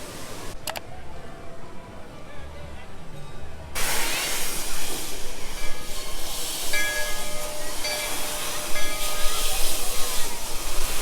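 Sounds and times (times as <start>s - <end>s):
steam locomotive hissing: 0.0s - 0.6s, 3.8s - 11.0s.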